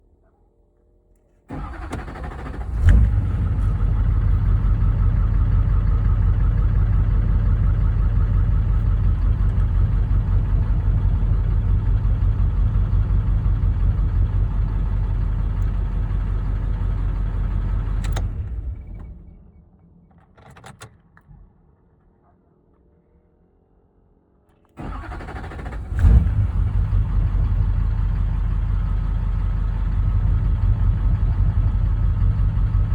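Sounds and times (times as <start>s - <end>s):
diesel engine idling: 1.5s - 19.2s, 24.8s - 32.9s
diesel engine starter cranking: 1.5s - 19.2s, 24.8s - 32.9s.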